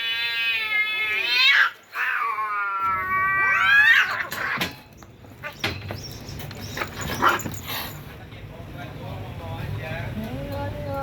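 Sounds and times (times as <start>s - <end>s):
cats yowling: 0.0s - 4.8s.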